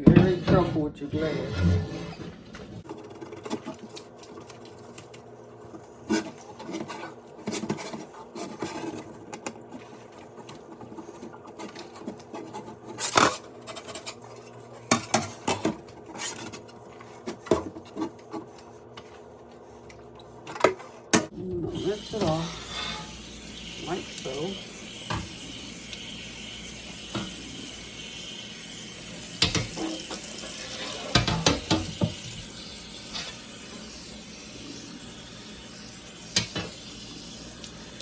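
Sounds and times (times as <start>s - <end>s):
glass scrubbed in dish water: 21.7s - 24.5s.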